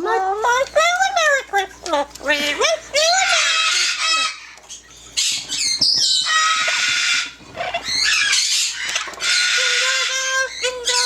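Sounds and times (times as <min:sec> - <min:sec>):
parrot squawking: 0:02.5 - 0:11.0.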